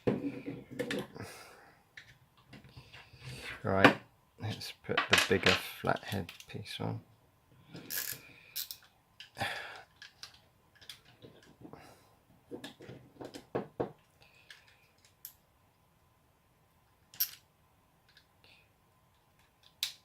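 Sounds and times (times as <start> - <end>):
screwdriver and plastic parts clicking: 8.0 - 11.6.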